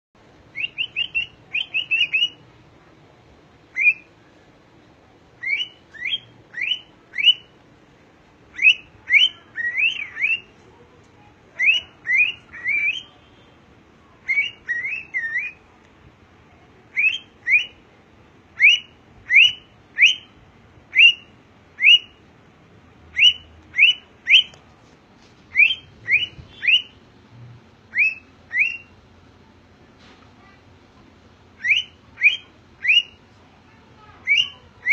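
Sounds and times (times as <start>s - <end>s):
cockatiel whistling: 0.5s - 2.4s, 3.7s - 4.1s, 5.4s - 7.5s, 8.5s - 10.5s, 11.6s - 13.2s, 14.2s - 15.6s, 16.9s - 17.8s, 18.6s - 20.3s, 20.9s - 22.2s, 23.2s - 24.6s, 25.5s - 27.0s, 27.9s - 29.0s, 31.6s - 33.2s, 34.2s - 34.9s.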